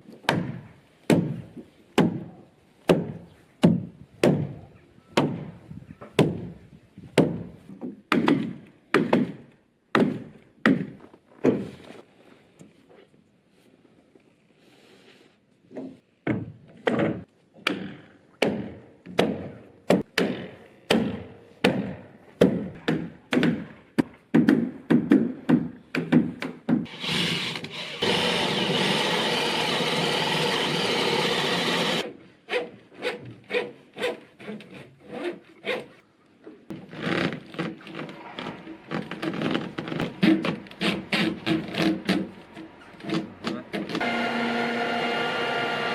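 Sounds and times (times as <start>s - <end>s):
wood being worked by hand: 15.7s - 35.9s, 36.7s - 45.9s
power tool running: 26.9s - 32.0s, 44.0s - 45.9s.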